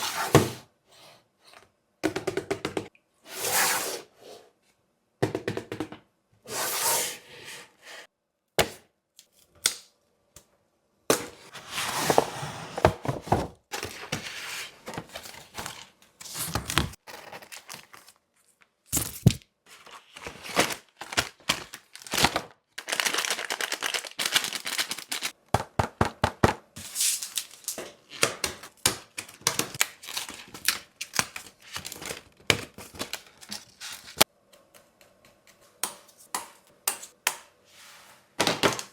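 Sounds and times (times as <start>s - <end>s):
plastic and cardboard crinkling: 13.0s - 25.4s, 26.8s - 34.3s.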